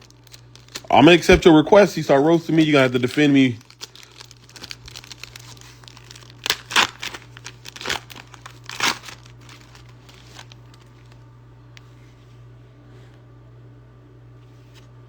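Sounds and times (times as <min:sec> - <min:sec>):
foil wrapper crinkling: 0:00.0 - 0:11.2
steady low hum: 0:00.0 - 0:15.0.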